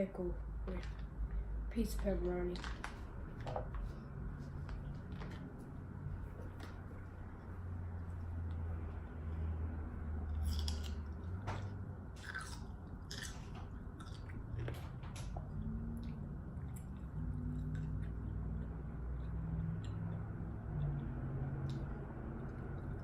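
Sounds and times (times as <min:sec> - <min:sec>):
person chewing crunchy food: 0:10.3 - 0:14.8.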